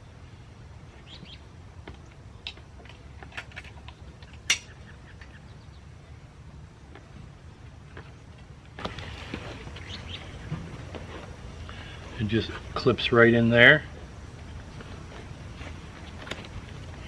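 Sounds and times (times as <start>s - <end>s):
small scrapes and clicks of straps: 14.5s - 17.0s.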